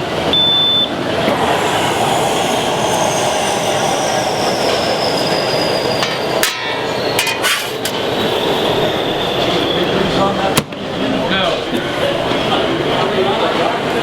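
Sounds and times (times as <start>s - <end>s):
high whine falling in pitch: 0.3s - 7.3s
oven blower running: 0.8s - 6.8s.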